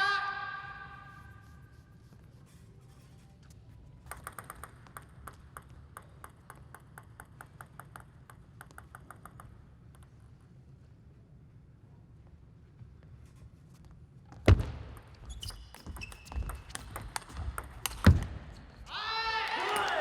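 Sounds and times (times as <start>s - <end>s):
low hall hum: 0.0s - 20.0s
table tennis ball pings: 4.1s - 10.1s, 15.7s - 18.3s.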